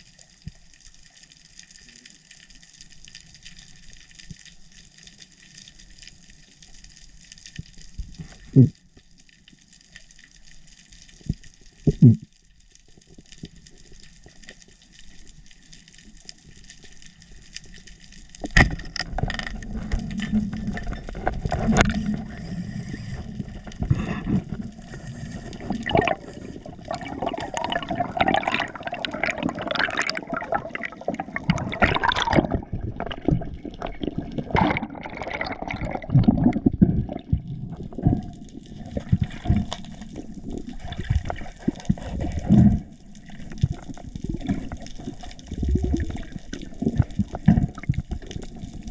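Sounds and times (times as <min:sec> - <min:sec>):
water sloshing and gurgling: 0:12.8 - 0:48.9.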